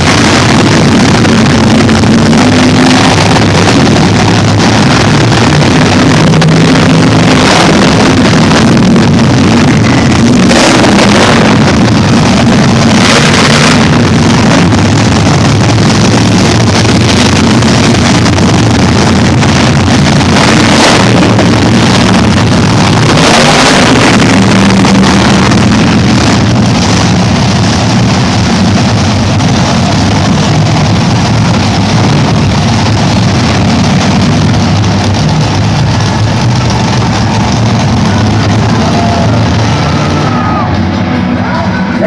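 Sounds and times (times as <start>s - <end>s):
monster truck engine revving: 0.0s - 42.0s.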